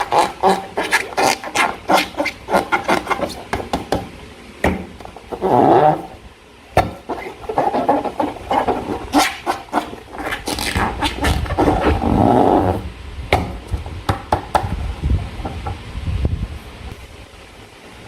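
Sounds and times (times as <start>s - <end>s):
slime squelching: 0.0s - 3.6s, 6.9s - 12.7s.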